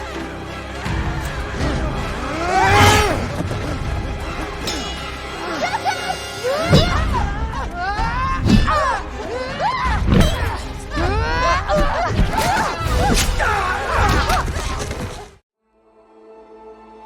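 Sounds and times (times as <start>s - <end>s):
music: 0.0s - 17.0s
voices shouting and screaming: 0.6s - 15.4s
thuds and crashes: 6.6s - 7.3s, 9.9s - 15.4s.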